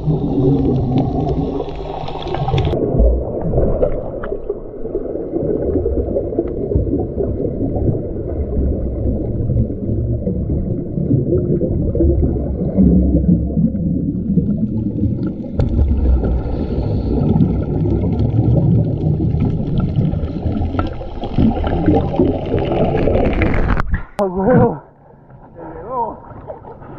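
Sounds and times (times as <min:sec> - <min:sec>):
underwater rumble and bubbles: 0:00.0 - 0:26.9.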